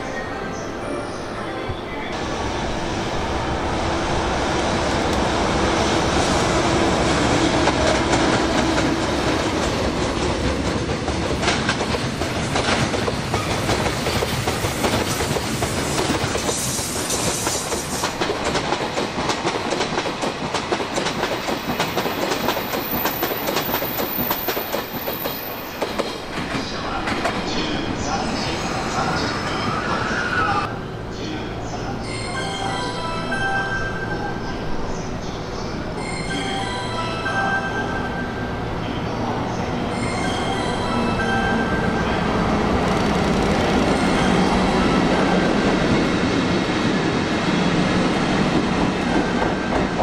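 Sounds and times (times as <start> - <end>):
train wheels clicking over rail joints: 7.5 - 27.4.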